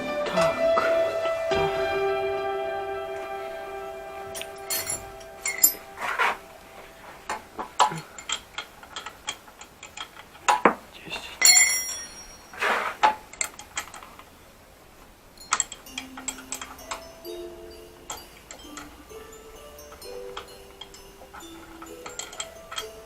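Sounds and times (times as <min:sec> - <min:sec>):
metal tools clinking and knocking: 0:04.3 - 0:06.4, 0:07.3 - 0:10.8, 0:11.4 - 0:12.6, 0:15.4 - 0:23.0.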